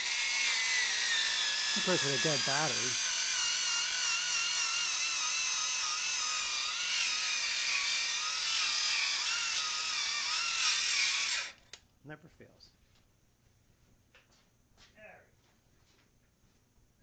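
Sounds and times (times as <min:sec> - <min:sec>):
angle grinder whining: 0:00.0 - 0:11.7.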